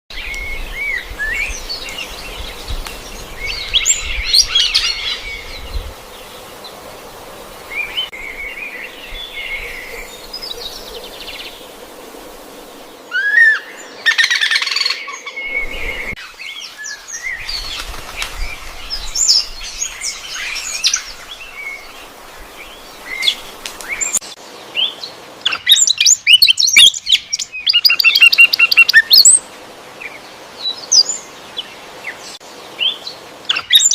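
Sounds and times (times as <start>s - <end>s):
birds chirping and trilling: 0.1s - 33.9s.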